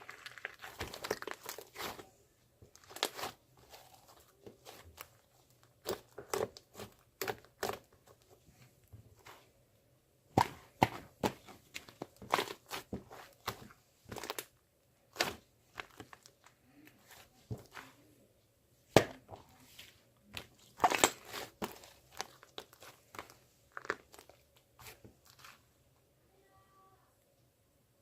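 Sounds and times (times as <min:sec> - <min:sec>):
small objects crinkling and clicking: 0:00.0 - 0:07.4.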